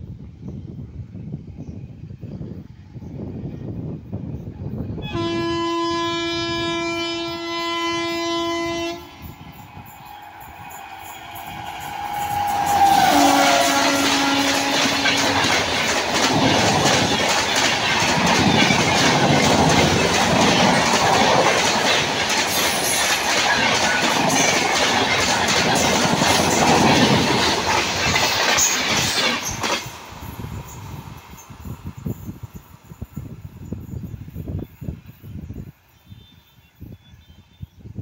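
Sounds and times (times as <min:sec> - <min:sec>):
train horn: 0:05.0 - 0:15.8
train wheels clattering on rails: 0:09.2 - 0:34.0.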